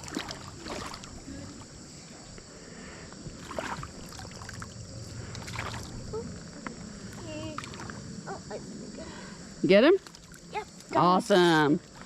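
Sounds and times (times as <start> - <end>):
creek water splashing: 0.0 - 8.4, 9.8 - 12.0.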